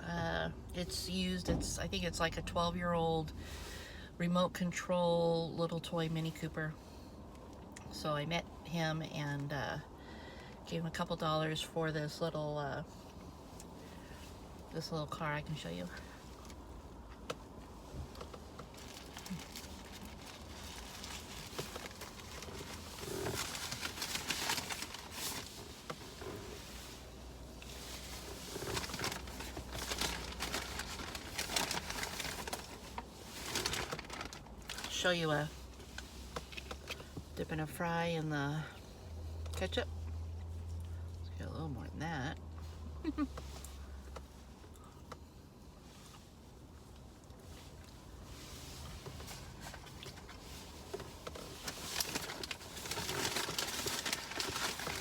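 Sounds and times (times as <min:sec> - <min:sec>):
low steady hum: 0:00.0 - 0:55.0
paper wrappers rustling: 0:18.1 - 0:26.5, 0:27.6 - 0:37.0, 0:49.0 - 0:55.0.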